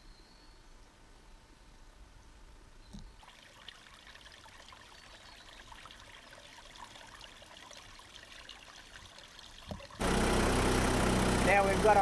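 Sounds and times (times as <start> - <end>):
stream trickling: 3.0 - 11.5.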